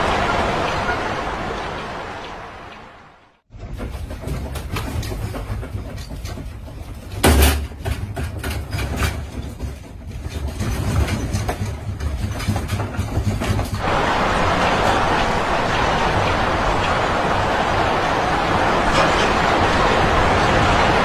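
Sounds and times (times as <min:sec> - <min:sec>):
earthquake rumble: 0:00.0 - 0:21.0
loose objects rattling: 0:03.5 - 0:13.8.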